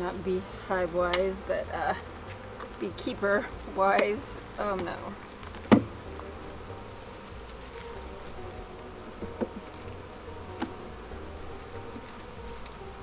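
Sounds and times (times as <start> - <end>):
honeybees buzzing: 0.0 - 13.0
light knocks: 4.8 - 6.0.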